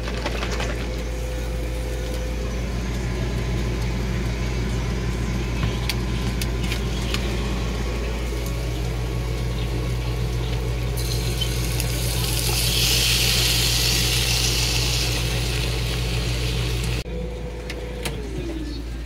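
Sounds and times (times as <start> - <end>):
low appliance hum: 0.0 - 19.0
food sizzling in a pan: 11.0 - 17.0.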